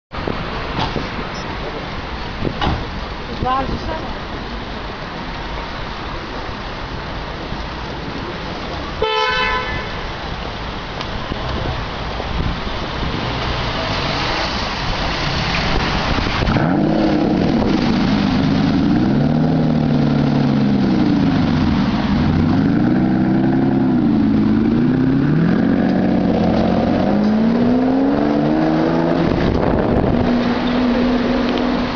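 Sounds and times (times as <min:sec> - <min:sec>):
street noise: 0:00.1 - 0:31.9
car horn toot: 0:09.0 - 0:10.0
car engine starting and revving: 0:12.9 - 0:31.9.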